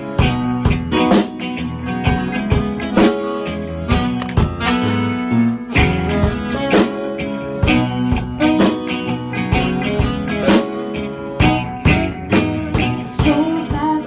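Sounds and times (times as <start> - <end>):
rock band playing: 0.0 - 14.0
drum hits: 4.0 - 4.8.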